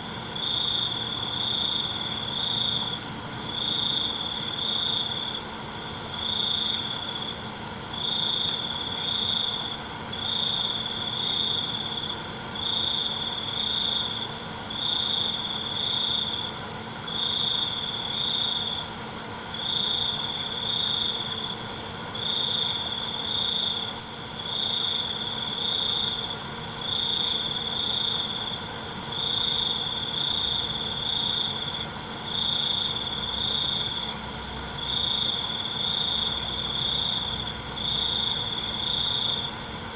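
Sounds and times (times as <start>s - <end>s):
chorus of insects: 0.0s - 39.9s
cricket trilling: 0.0s - 39.9s.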